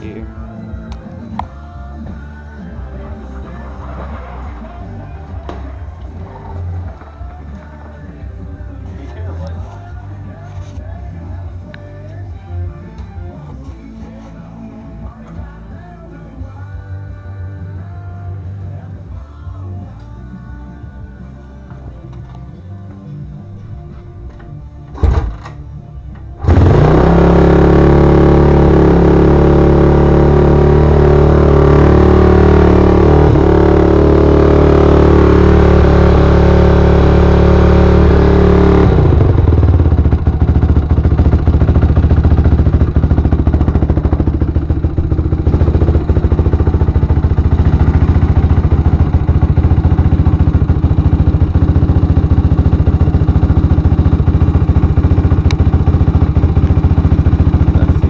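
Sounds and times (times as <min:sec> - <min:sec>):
engine idling: 0:23.5 - 0:58.0
loud held pitches: 0:26.4 - 0:58.0.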